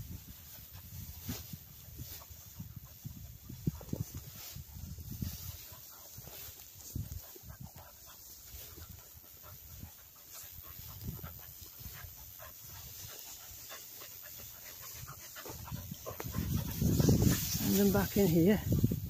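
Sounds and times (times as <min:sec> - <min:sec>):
dog panting: 0:05.5 - 0:17.9.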